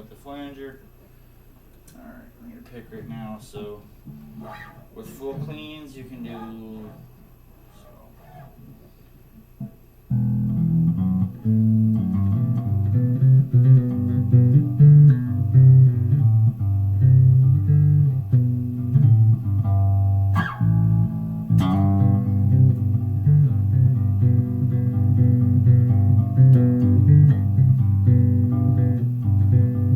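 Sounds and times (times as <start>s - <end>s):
bass string clicks: 9.6s - 29.9s
plucked bass guitar notes: 10.1s - 29.9s.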